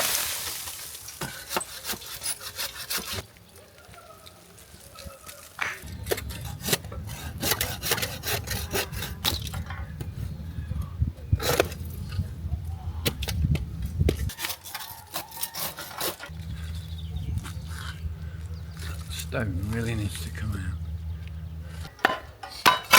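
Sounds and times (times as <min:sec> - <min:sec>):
steady low hum: 0:16.3 - 0:22.4
scraping and rubbing: 0:18.7 - 0:20.4
knocking on wood and stone: 0:22.0 - 0:22.9.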